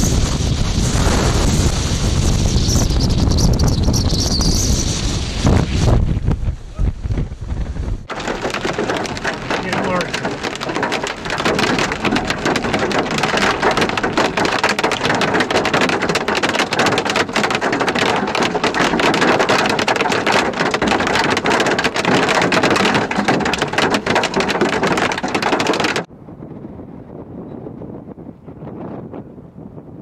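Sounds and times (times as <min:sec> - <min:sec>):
heavy rain on a car: 0:08.1 - 0:26.1.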